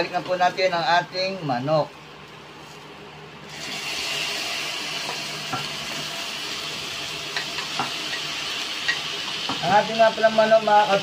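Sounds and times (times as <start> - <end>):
chicken sizzling in hot oil: 3.4 - 11.0.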